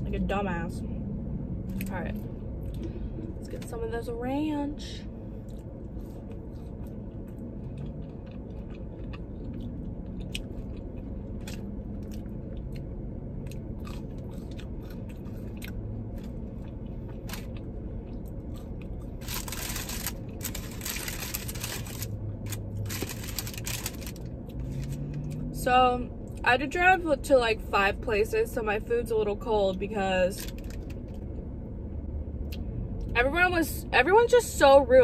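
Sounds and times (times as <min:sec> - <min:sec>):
low steady hum: 0:00.0 - 0:35.0
chewing and crunching fries: 0:05.3 - 0:25.5, 0:30.3 - 0:31.4
crackly noise: 0:13.5 - 0:25.2.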